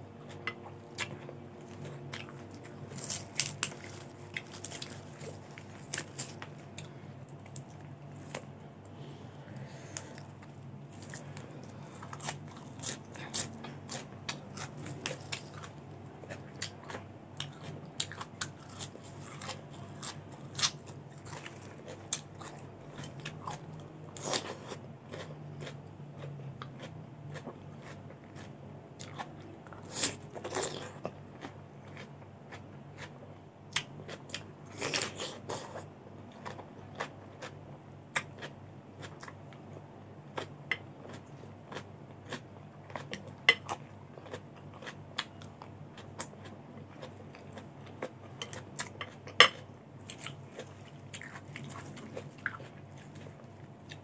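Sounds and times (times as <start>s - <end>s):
crunching raw vegetables: 0.3s - 8.5s.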